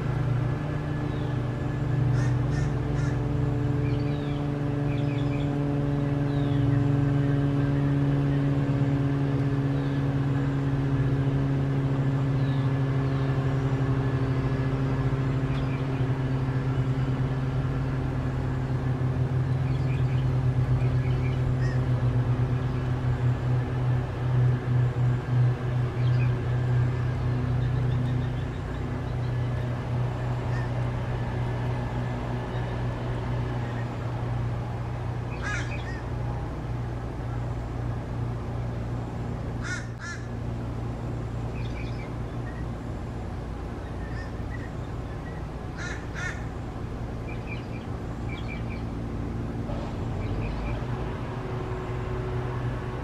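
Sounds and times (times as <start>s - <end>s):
small birds chirping: 0.0s - 36.2s, 41.3s - 51.8s
steady low hum: 0.0s - 53.0s
harsh crow-like bird calls: 2.1s - 3.4s, 21.5s - 22.0s, 30.4s - 30.9s, 35.3s - 36.1s, 39.6s - 40.4s, 44.0s - 44.7s, 45.7s - 46.6s.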